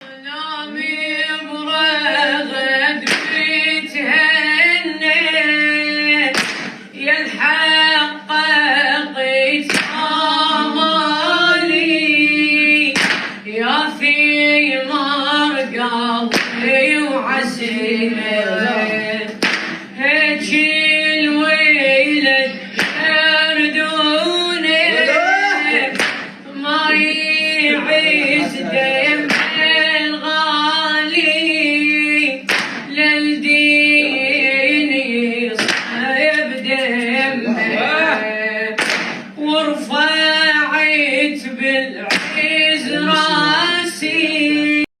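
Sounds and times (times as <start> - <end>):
person singing mournful elegy: 42.7 - 44.4.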